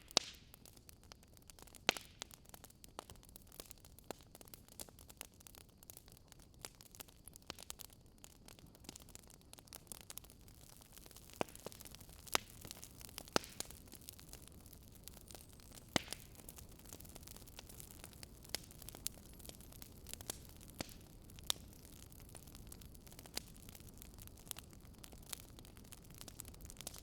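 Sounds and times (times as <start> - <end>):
faint steady hiss: 0.0 - 27.0
wood fire crackling: 0.0 - 27.0.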